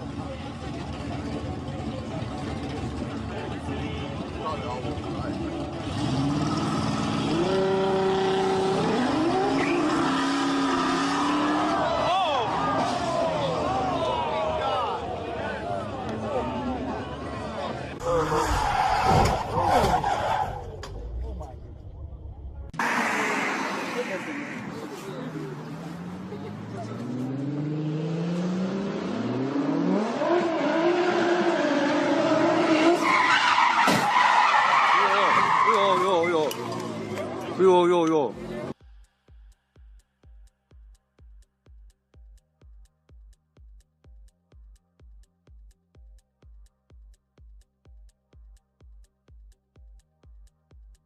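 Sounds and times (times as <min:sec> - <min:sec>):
car engine accelerating: 0:00.0 - 0:33.9
road and tyre noise: 0:00.0 - 0:51.0.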